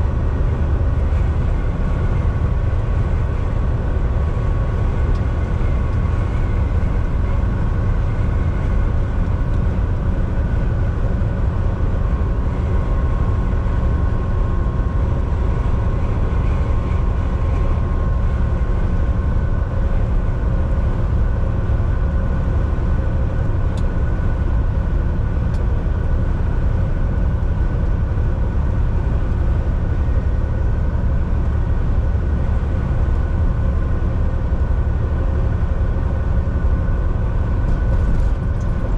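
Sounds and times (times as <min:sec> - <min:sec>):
truck diesel engine rumble: 0:00.0 - 0:38.9.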